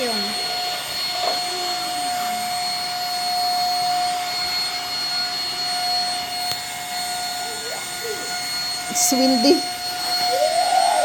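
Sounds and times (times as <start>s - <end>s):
vacuum cleaner running on carpet: 0.0s - 11.0s.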